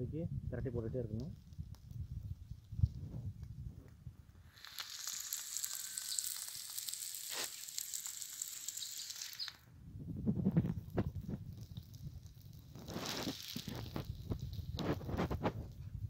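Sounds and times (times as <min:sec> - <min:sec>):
eggs sizzling in oil: 0:04.4 - 0:09.6, 0:11.4 - 0:15.2.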